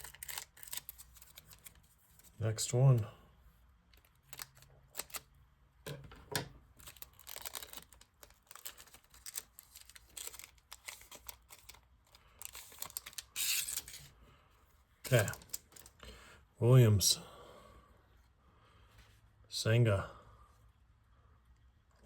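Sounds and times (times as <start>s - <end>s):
wrapper crinkling and tearing: 0.0s - 2.3s, 4.0s - 5.3s, 6.8s - 14.1s, 15.1s - 16.0s
cards being handled: 0.0s - 2.4s, 3.9s - 5.3s, 5.9s - 14.1s, 15.0s - 16.0s.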